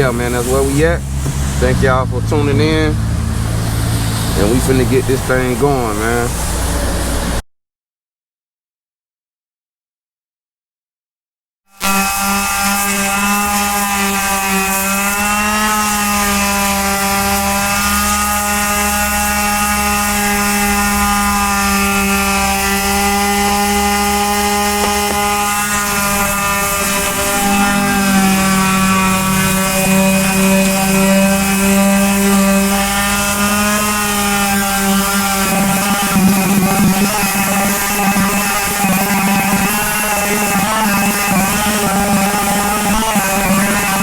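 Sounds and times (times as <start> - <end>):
sandpaper hissing on paint: 0.0 - 1.7, 11.8 - 44.0
power sander motor hum: 0.0 - 7.4, 11.7 - 44.0.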